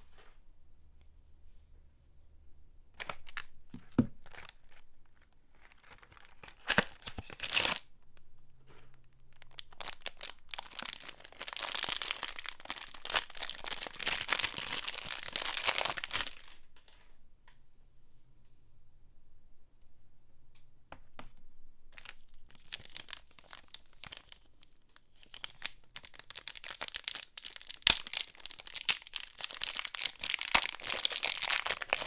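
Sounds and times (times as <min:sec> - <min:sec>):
packaging tearing and crinkling: 0:03.0 - 0:04.8, 0:05.5 - 0:07.8, 0:09.3 - 0:16.6, 0:22.0 - 0:24.5, 0:25.2 - 0:32.0.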